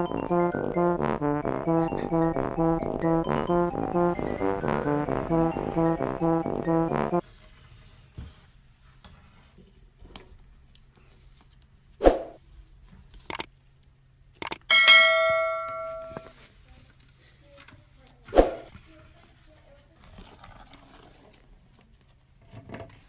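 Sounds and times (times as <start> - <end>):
metallic ring: 14.7 - 16.3.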